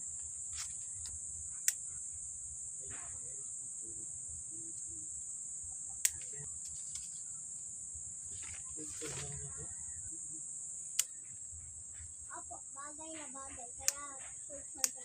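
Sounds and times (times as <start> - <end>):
insects droning: 0.0 - 15.0
sharp clicks: 0.6 - 1.9, 10.9 - 11.3, 13.8 - 14.2, 14.8 - 15.0.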